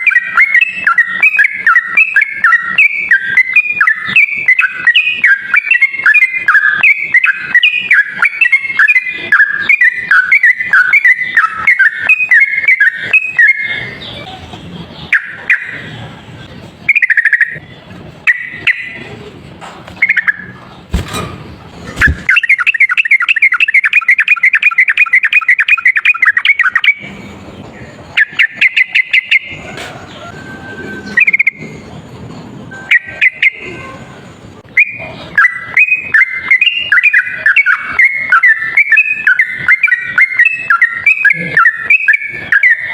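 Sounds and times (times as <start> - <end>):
bulbul singing rapid chattering notes: 22.0 - 27.1.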